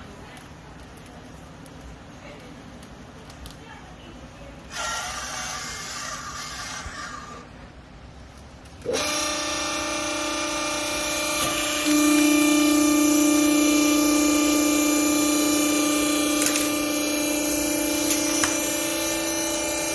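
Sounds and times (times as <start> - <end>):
hydraulic pump motor whining hum: 8.8 - 19.9.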